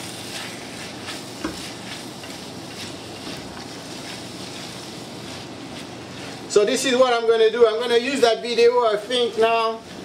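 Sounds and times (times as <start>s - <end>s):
spatula scraping pan: 0.0s - 6.6s
vegetables sizzling in pan: 0.0s - 10.0s.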